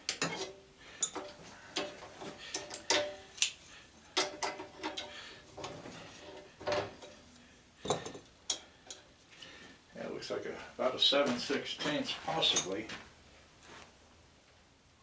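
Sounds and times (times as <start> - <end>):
hand tools clinking on metal: 0.1 - 5.2.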